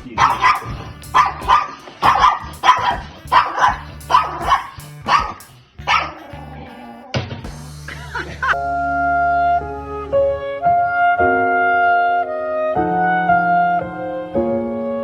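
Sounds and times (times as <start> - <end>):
background music: 0.0 - 6.6, 7.4 - 15.0
dog barking: 0.2 - 7.0.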